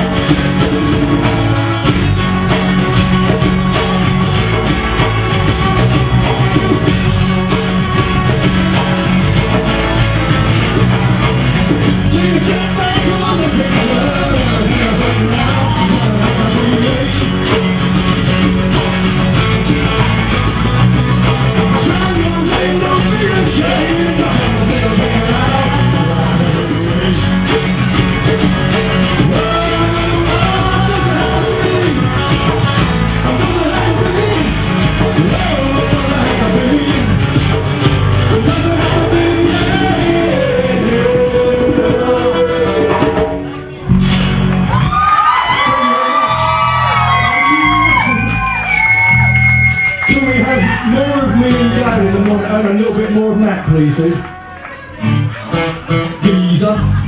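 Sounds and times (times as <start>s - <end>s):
person singing: 0.0s - 9.7s, 10.7s - 19.8s, 21.2s - 43.9s
live rock band playing: 0.0s - 57.0s.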